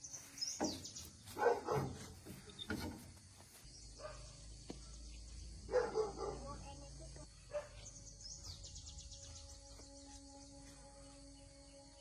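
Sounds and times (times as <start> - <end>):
dog barking: 1.4 - 2.0, 4.0 - 4.4, 5.7 - 6.7, 7.5 - 7.9.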